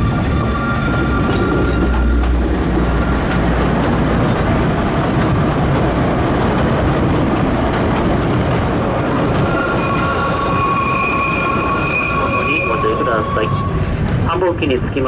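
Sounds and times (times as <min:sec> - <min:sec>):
train wheels rumbling on rails: 0:00.0 - 0:15.0
faint high squeal: 0:09.5 - 0:13.9.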